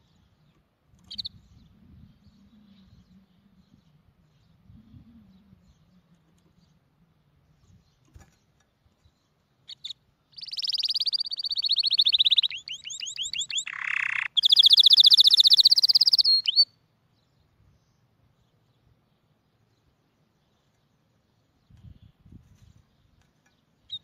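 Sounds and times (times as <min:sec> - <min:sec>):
songbird trilling: 0:01.0 - 0:01.7, 0:09.7 - 0:16.7.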